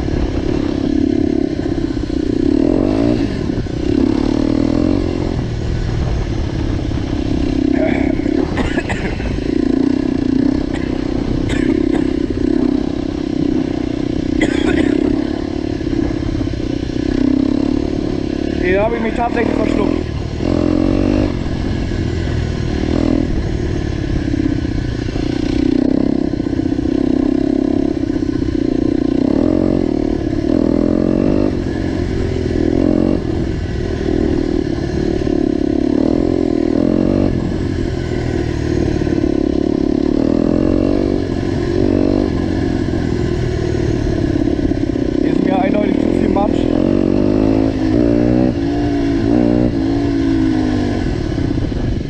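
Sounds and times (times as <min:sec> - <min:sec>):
motorcycle engine riding: 0:00.0 - 0:52.0.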